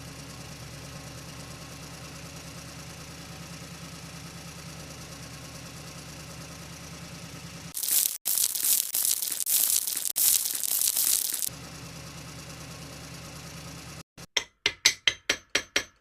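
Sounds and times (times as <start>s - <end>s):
concrete pouring out: 7.8s - 11.5s
sharp hammering strikes: 14.2s - 16.0s.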